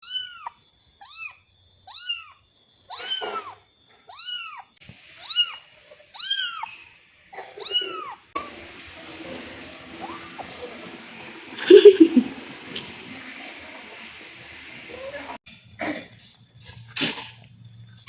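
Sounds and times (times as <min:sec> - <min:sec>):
kitten meowing: 0:00.0 - 0:06.8, 0:07.4 - 0:08.2.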